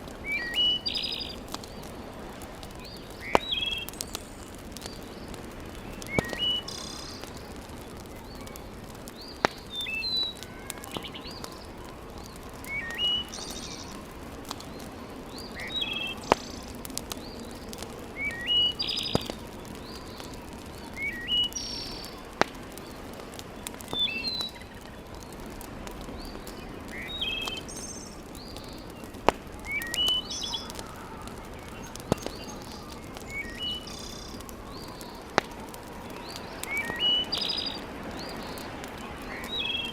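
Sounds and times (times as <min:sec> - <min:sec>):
fire crackle: 0:00.0 - 0:39.9
wood fire hissing: 0:00.0 - 0:39.9
songbird chirping: 0:02.7 - 0:22.4, 0:26.1 - 0:39.9.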